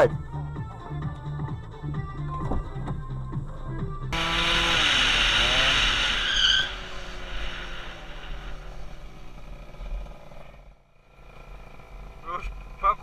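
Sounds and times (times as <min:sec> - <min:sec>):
engine and road noise: 0:00.0 - 0:13.0
car tyres screeching: 0:04.2 - 0:13.0.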